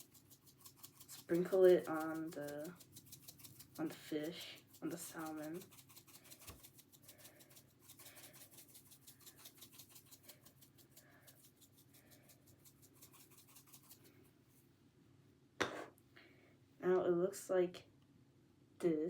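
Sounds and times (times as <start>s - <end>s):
dried herbs sprinkling rattle: 0.0s - 14.2s.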